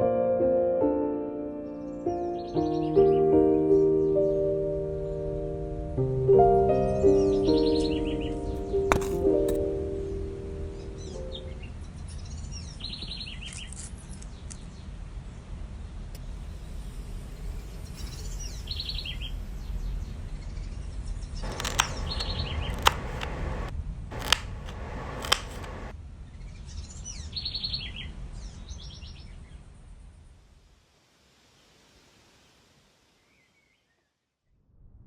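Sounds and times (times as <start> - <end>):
sharp clicks: 21.4 - 25.9.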